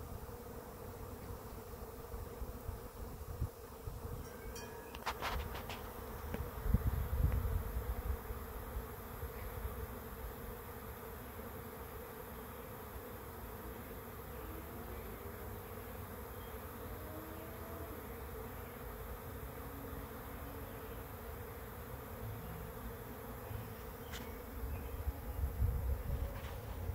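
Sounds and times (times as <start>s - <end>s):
bee swarm buzzing: 0.0s - 26.9s
single bee flying past: 0.0s - 26.9s.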